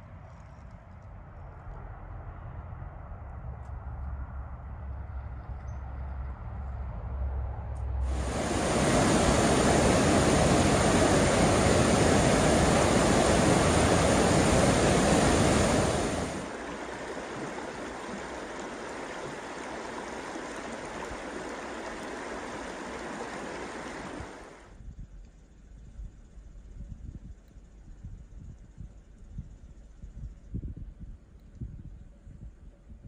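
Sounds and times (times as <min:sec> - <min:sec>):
rushing water: 0:08.1 - 0:24.7.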